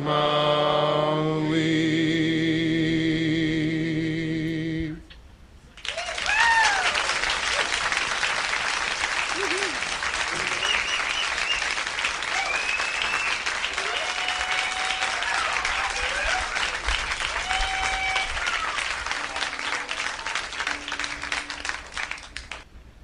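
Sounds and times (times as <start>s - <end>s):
audience applauding and cheering: 5.8s - 22.7s
whistles: 10.4s - 13.5s.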